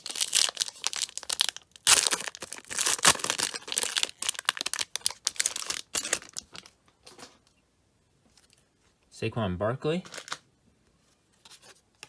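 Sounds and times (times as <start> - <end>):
plastic wrapper tearing and crinkling: 0.0 - 6.8, 10.1 - 10.4.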